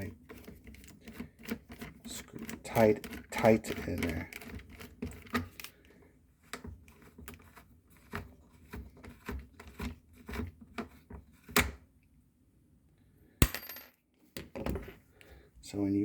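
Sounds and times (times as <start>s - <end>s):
plastic parts clicking and knocking: 0.0s - 5.7s.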